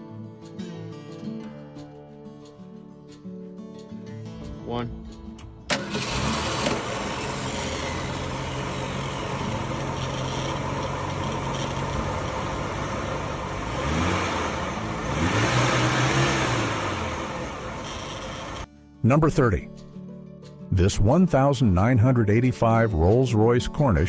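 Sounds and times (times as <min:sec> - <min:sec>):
car engine idling and revving: 0:05.0 - 0:18.7.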